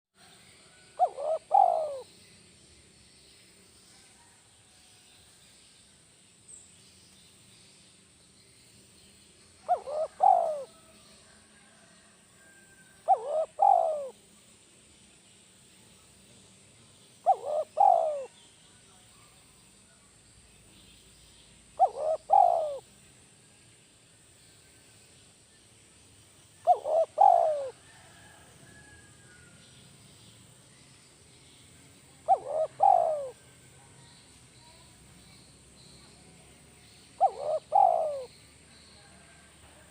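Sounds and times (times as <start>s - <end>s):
dove cooing: 0.7s - 2.1s, 9.6s - 10.9s, 13.0s - 14.2s, 17.2s - 18.4s, 21.8s - 22.8s, 26.6s - 28.3s, 32.2s - 33.4s, 37.2s - 38.4s.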